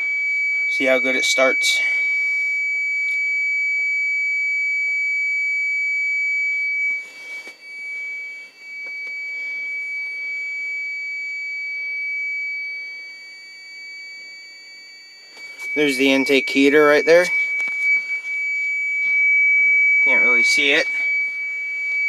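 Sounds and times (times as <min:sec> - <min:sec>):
dashboard warning buzzer: 0:00.0 - 0:22.0.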